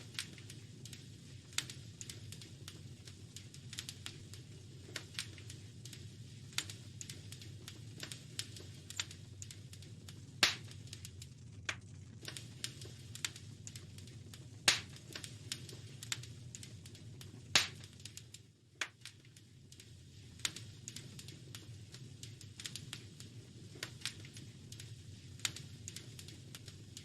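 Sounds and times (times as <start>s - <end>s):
wood fire crackling: 0.0s - 27.0s
steady low rumble: 0.6s - 18.8s.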